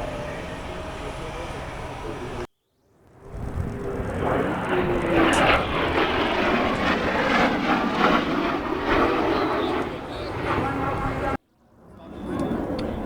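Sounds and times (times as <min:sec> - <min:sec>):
aircraft engine rushing: 0:00.0 - 0:02.5, 0:03.1 - 0:13.0.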